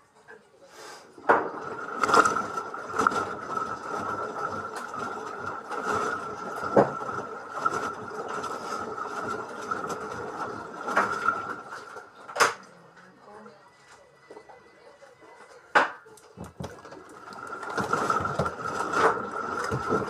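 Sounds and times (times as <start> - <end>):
washing machine motor whine: 1.1 - 20.0
drum churning: 1.2 - 12.1, 16.4 - 20.0
washing machine knocking: 1.2 - 12.6, 15.8 - 20.0.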